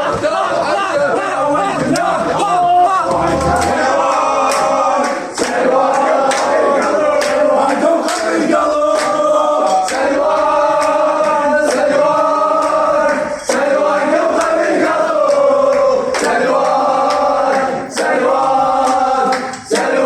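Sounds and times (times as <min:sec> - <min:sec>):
men chanting and singing: 0:00.0 - 0:20.0.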